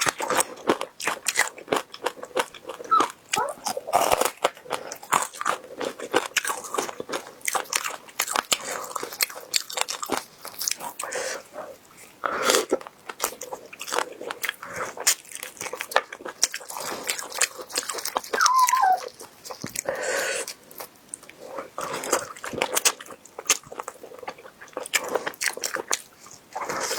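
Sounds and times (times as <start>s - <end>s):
crunchy chewing: 0.0s - 26.9s.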